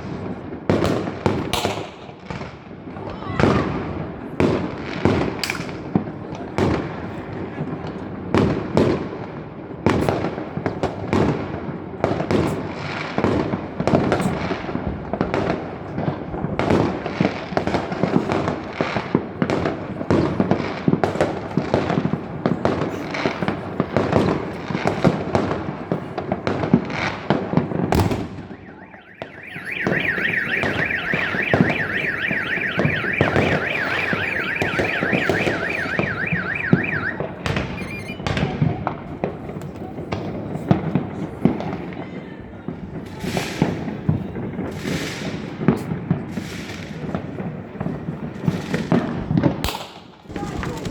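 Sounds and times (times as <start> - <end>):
fireworks bangs and crackling: 0.0 - 50.9
electronic alarm warbling: 28.7 - 38.3.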